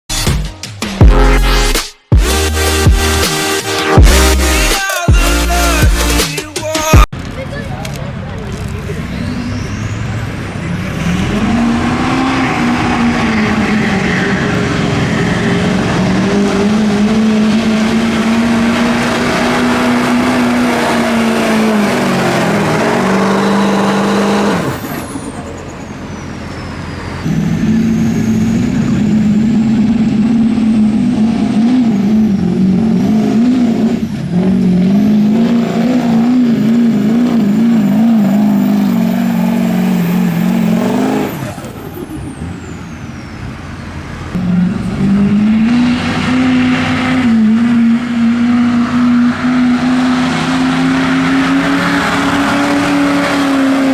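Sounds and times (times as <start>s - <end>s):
truck engine at full throttle: 0.7s - 53.9s.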